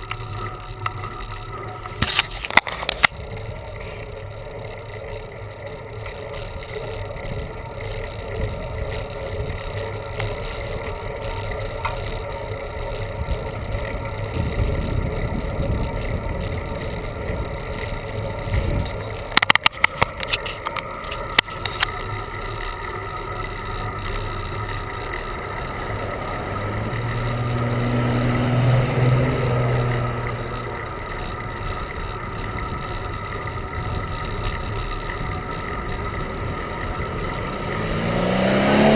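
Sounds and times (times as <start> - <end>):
road noise: 0.0 - 38.9
cluster of sharp clicks: 7.9 - 26.2
wind noise: 13.1 - 19.6
motor vehicle passing: 23.0 - 38.9.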